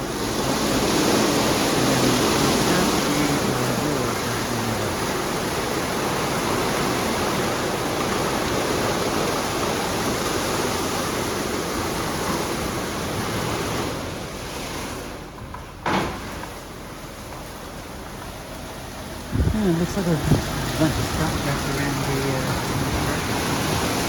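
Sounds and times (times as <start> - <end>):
car wash water spray hissing: 0.0 - 7.7, 16.3 - 24.0.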